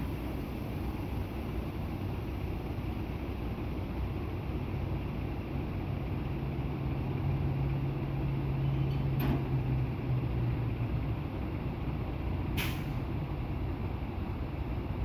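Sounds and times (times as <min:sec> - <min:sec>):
truck diesel engine running: 0:00.0 - 0:15.0
air brake hisses: 0:12.6 - 0:13.0.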